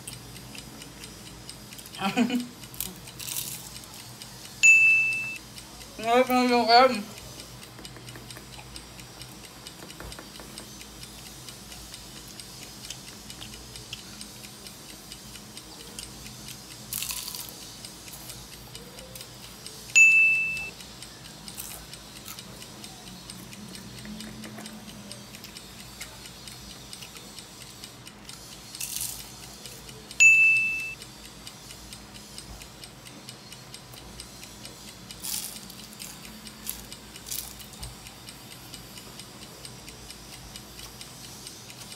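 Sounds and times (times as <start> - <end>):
clock ticking: 0.0 - 41.9
crunching of fried food bitten: 2.7 - 4.0, 16.8 - 18.3, 21.5 - 22.6, 28.7 - 29.4, 35.2 - 37.8
short high dings: 4.6 - 5.4, 20.0 - 20.7, 30.2 - 31.0.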